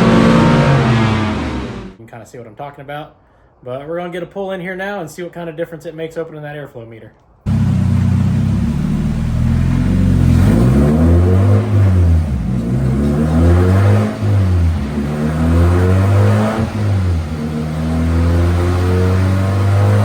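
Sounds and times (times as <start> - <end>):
car engine accelerating: 0.0 - 2.0, 7.5 - 20.0.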